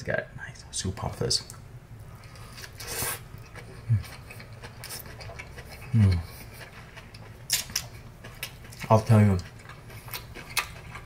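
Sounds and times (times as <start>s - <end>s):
man chewing with wet clicks: 2.2s - 11.0s.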